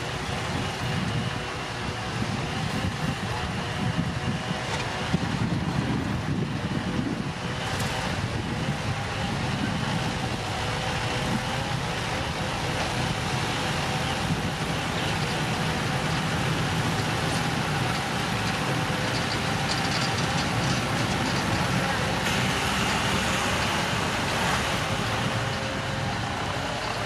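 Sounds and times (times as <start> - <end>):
diesel engine running steadily: 0.0 - 27.0.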